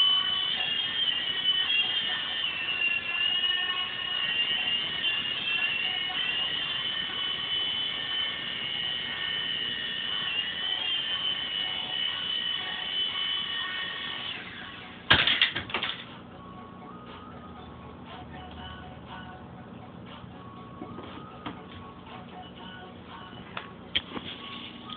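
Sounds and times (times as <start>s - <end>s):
toy helicopter motors whining: 0.0s - 14.9s.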